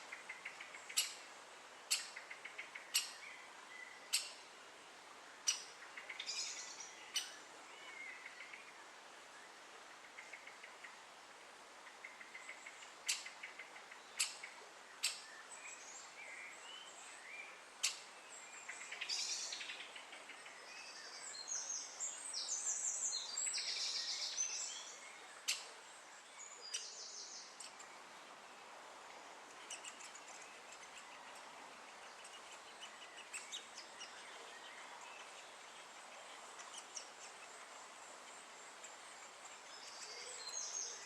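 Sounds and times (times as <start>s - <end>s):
woodpecker calls: 0.0s - 1.3s, 1.9s - 3.3s, 4.0s - 4.4s, 5.4s - 7.4s, 9.9s - 11.0s, 11.8s - 15.3s, 17.8s - 20.6s, 25.4s - 25.8s, 26.6s - 27.9s, 29.5s - 41.0s
small birds singing: 0.0s - 41.0s.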